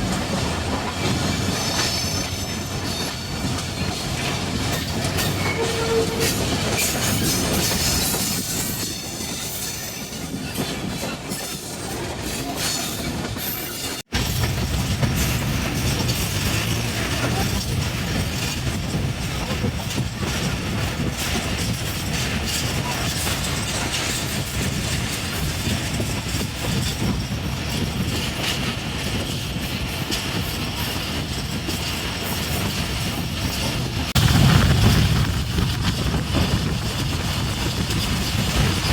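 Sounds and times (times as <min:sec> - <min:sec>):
train wheels clattering and rumbling: 0:00.0 - 0:38.9.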